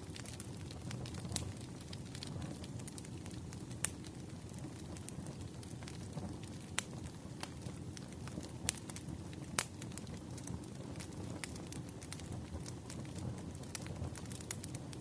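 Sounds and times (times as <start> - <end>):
low rumble of flames: 0.0 - 15.0
wood crackling and popping: 0.0 - 15.0.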